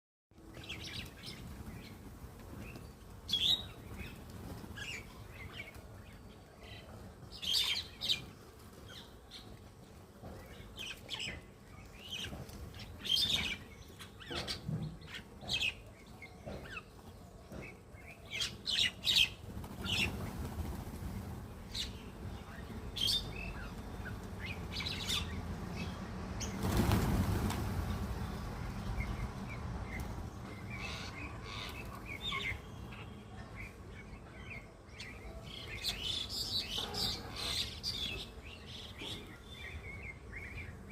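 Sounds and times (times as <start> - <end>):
wings flapping: 19.3 - 21.5, 26.4 - 28.2.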